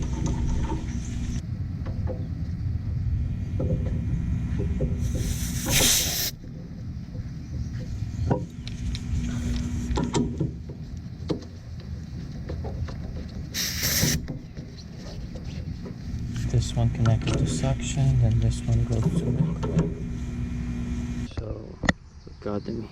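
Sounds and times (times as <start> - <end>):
refrigerant hissing: 5.0 - 6.4, 13.5 - 14.3.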